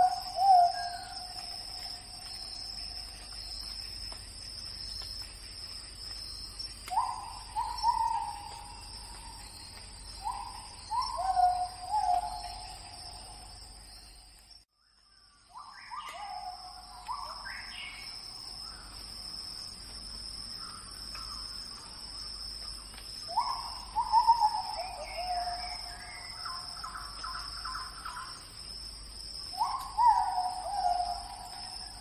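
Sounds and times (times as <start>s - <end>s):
bird calling: 0.0s - 3.8s, 6.8s - 13.5s, 23.3s - 28.4s, 29.6s - 32.0s
high-pitched insect drone: 0.0s - 14.6s.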